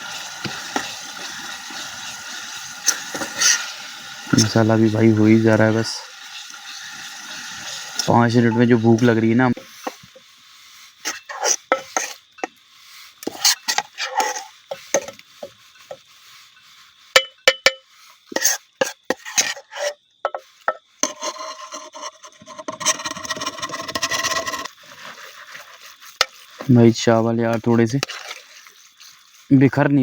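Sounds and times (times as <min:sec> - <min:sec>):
spoon scraping cooking pot: 0:00.0 - 0:16.1, 0:17.1 - 0:29.5
spoon knocking against pot: 0:17.2 - 0:17.9, 0:20.2 - 0:20.8.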